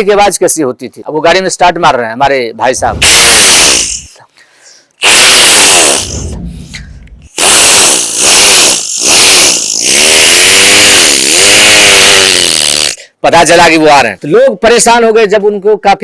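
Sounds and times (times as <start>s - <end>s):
man imitating motorbike engine: 7.4s - 13.0s.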